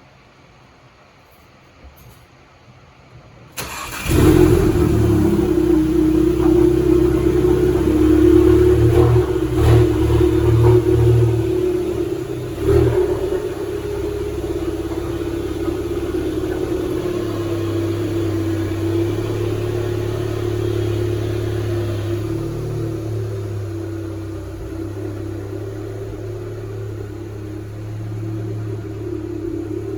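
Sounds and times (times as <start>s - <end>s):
engine running: 3.6s - 29.9s.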